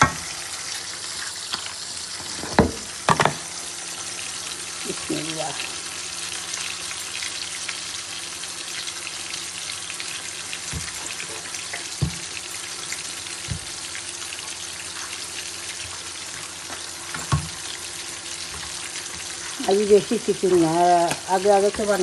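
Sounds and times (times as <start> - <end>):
food sizzling in hot oil: 0.0 - 22.0
utensil knocking on pan: 11.8 - 12.4.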